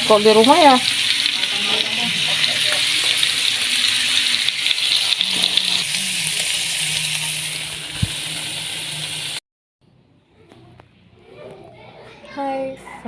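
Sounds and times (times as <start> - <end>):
food sizzling in a pan: 0.0 - 9.4.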